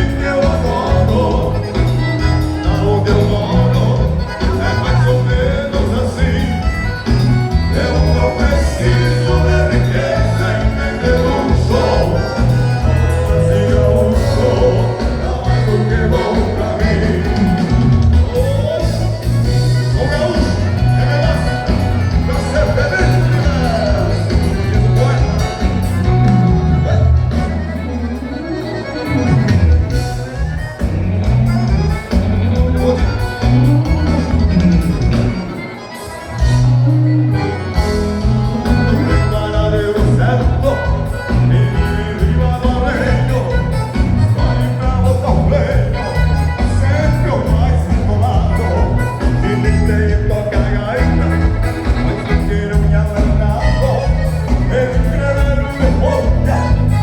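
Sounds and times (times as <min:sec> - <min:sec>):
man singing: 0:00.0 - 0:28.2, 0:29.1 - 0:57.0
accordion melody: 0:00.0 - 0:57.0
live dance band music: 0:00.0 - 0:57.0
steady bass line: 0:00.0 - 0:57.0.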